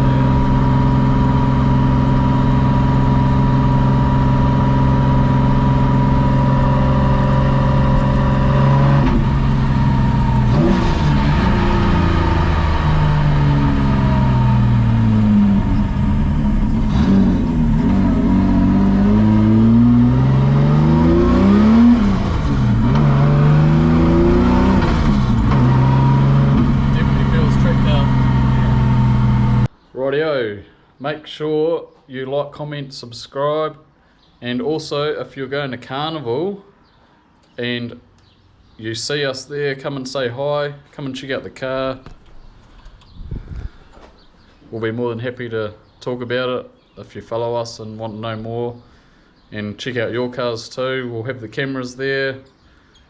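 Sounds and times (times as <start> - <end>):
car engine revving: 0.0 - 29.7.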